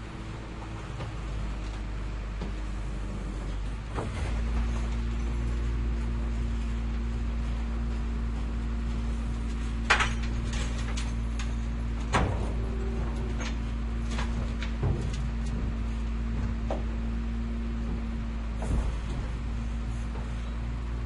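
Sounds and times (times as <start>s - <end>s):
garbage truck engine rumbling: 0.0s - 21.0s
sharp knocks and clatters: 9.8s - 12.8s, 13.4s - 20.4s.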